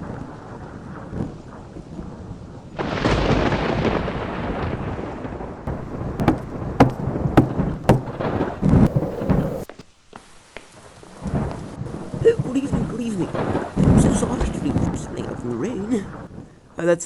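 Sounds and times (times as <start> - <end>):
thunder crashing and rumbling: 0.0 - 9.8, 11.1 - 16.7
steady rain: 0.0 - 17.0
sharp knocks: 5.7 - 9.8.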